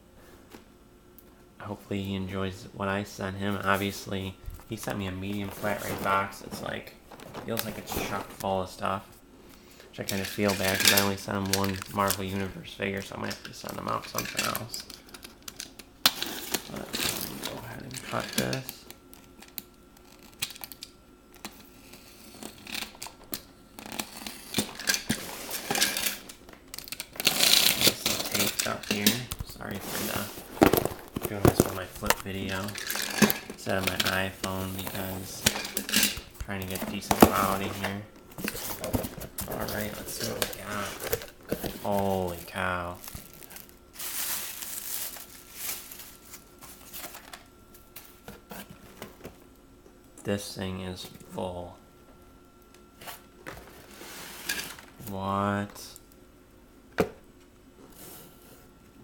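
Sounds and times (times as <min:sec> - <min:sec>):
packing material crinkling: 0:36.2 - 0:47.4.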